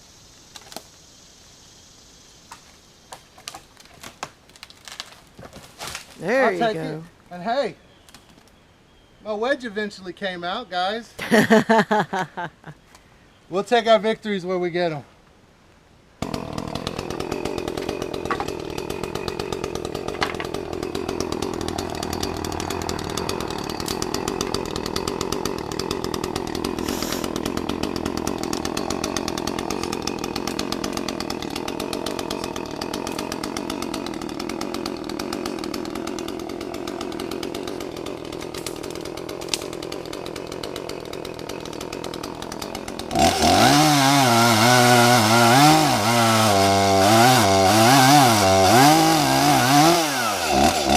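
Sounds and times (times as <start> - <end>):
chainsaw running: 16.2 - 50.9.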